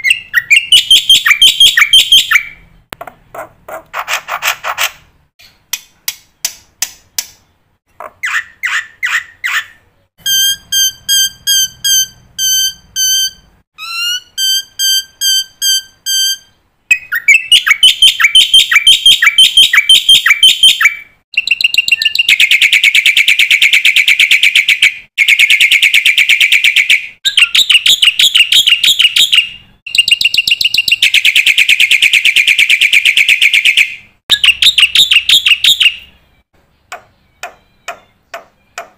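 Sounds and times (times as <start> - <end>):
myna bird whistling: 0.0 - 2.7, 8.1 - 38.9
harsh chattering bird trills: 8.0 - 12.1.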